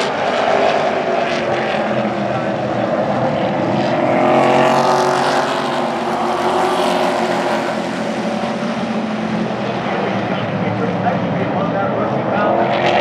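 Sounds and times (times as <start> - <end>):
race truck engines passing: 0.0 - 13.0.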